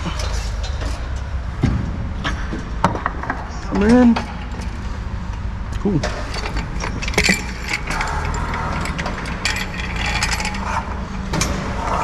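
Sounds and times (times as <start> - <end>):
metal hardware clinking: 3.7 - 11.6.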